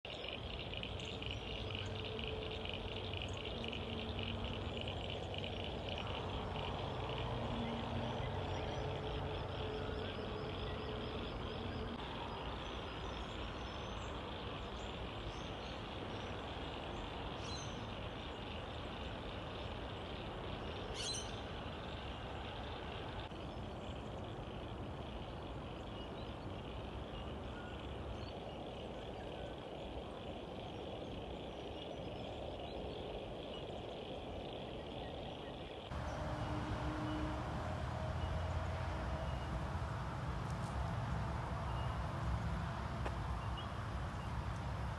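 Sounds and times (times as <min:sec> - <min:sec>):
steady rushing noise: 0:35.9 - 0:44.9.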